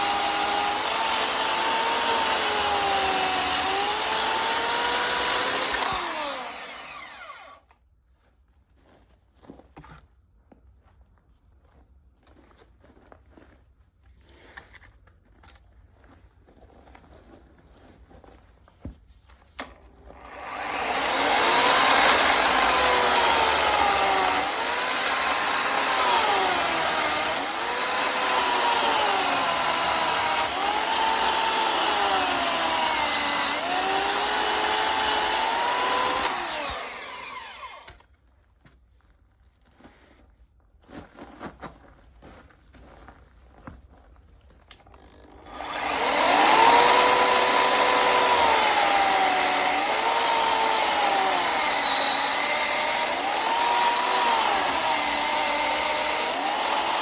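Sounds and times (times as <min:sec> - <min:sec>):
power saw cutting wood: 0:00.0 - 0:07.6, 0:20.2 - 0:38.0, 0:45.4 - 0:57.0.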